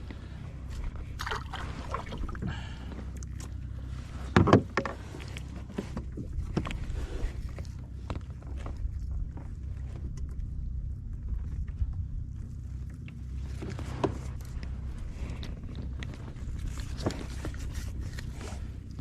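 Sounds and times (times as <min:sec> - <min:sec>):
water sloshing and splashing: 0:00.0 - 0:09.2
low steady rumble: 0:00.0 - 0:19.0.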